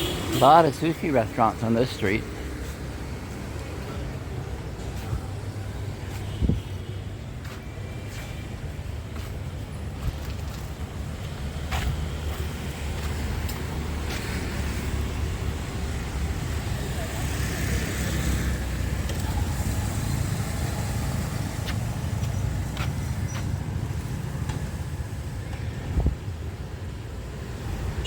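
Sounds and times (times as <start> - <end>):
traffic rumble: 0.0 - 28.0
background voices: 0.4 - 2.5.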